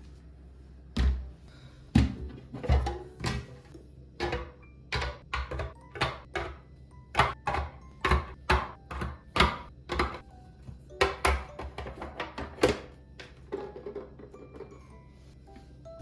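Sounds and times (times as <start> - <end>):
kitchen items knocking and clinking: 1.0 - 14.9.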